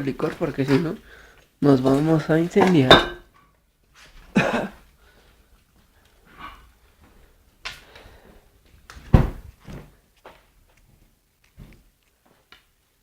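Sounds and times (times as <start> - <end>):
household objects knocking and bumping: 1.9 - 3.3.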